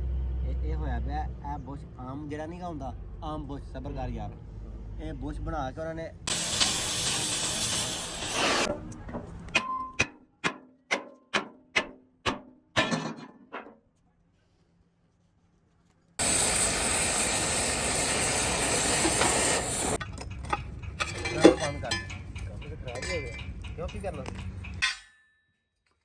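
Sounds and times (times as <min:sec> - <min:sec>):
loud steady hiss: 0:06.3 - 0:08.7, 0:16.2 - 0:20.0.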